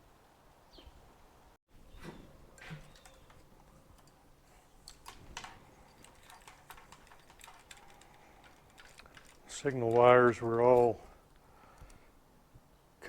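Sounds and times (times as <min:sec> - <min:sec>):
light clicks and taps of tools: 0:02.6 - 0:12.1.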